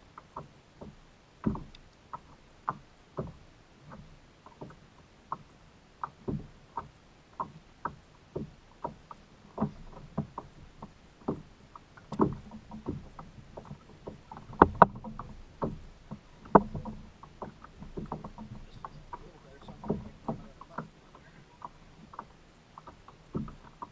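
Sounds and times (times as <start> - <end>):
knocks and slaps on kayak hull: 0.1 - 23.9.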